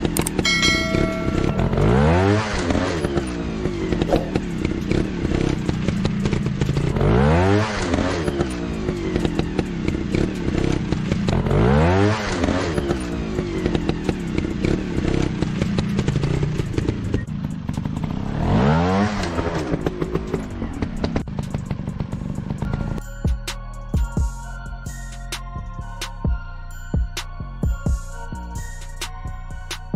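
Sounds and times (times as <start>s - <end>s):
dirt bike engine revving: 0.0s - 17.2s, 17.8s - 22.6s.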